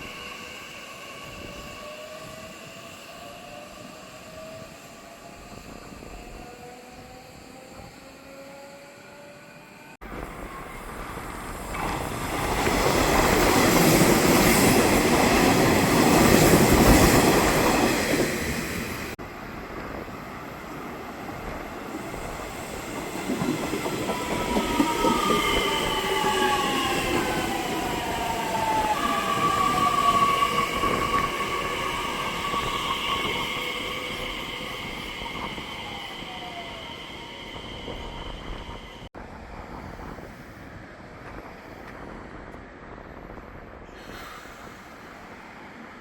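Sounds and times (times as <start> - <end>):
train wheels rushing on rail: 0.0 - 46.0
train whining tones: 22.0 - 40.3.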